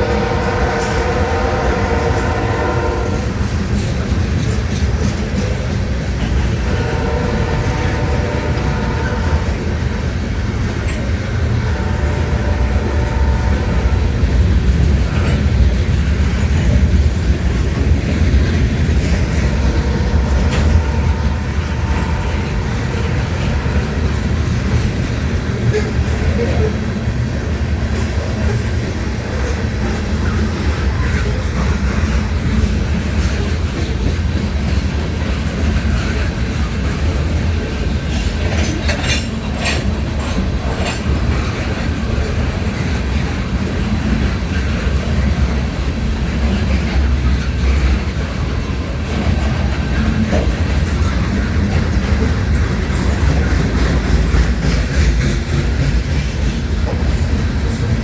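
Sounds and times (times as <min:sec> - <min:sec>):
train rumble: 0:00.0 - 0:58.0
train wheels clicking on rails: 0:00.0 - 0:58.0.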